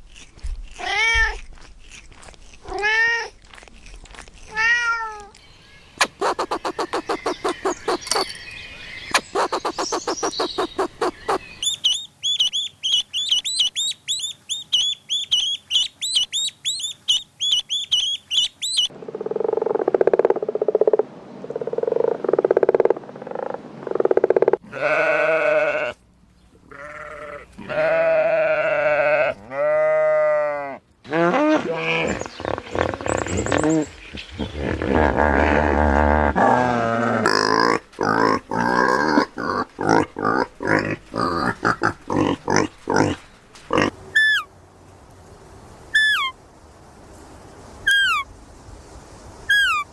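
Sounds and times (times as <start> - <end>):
high chirps: 5.4 - 18.9
rapid pulsed animal calls: 5.7 - 21.0
animal bleating: 24.6 - 26.0, 26.6 - 33.6.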